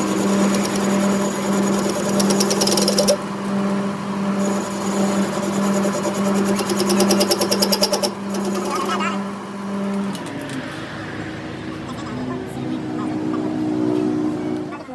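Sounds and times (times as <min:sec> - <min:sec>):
fast mechanical rattle: 0:00.0 - 0:11.4
workshop machine humming: 0:00.0 - 0:14.9.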